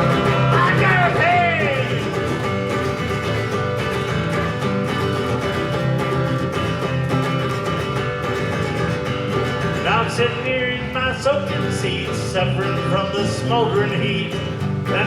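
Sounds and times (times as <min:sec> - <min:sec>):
person singing: 0:00.0 - 0:02.3
strummed guitar: 0:00.0 - 0:15.0.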